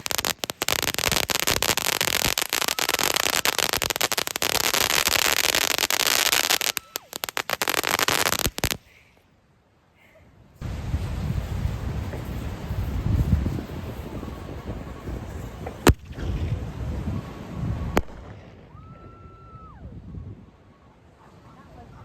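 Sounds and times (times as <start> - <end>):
firework crackling: 0.0 - 8.9, 10.6 - 18.9.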